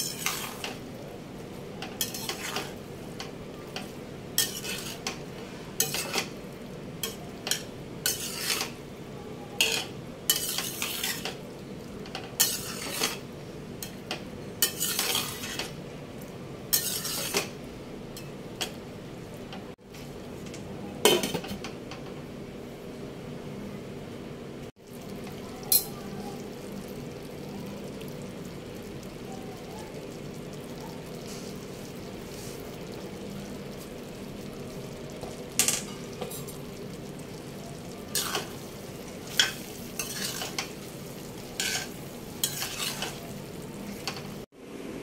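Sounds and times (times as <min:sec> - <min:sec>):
spoon scraping a pan: 0:00.0 - 0:00.8, 0:01.9 - 0:02.8, 0:03.8 - 0:06.4, 0:07.0 - 0:08.8, 0:09.6 - 0:11.4, 0:12.4 - 0:13.2, 0:14.6 - 0:15.7, 0:16.7 - 0:17.5, 0:38.1 - 0:44.3
food sizzling in a pan: 0:00.0 - 0:19.8, 0:24.7 - 0:44.5.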